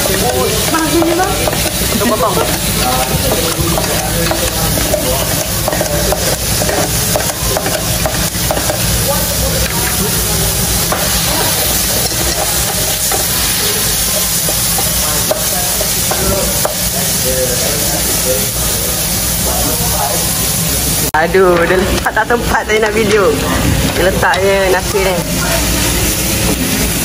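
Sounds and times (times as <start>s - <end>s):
tongs and spatula stirring: 0.0s - 20.0s
chicken sizzling in pan: 0.0s - 27.0s.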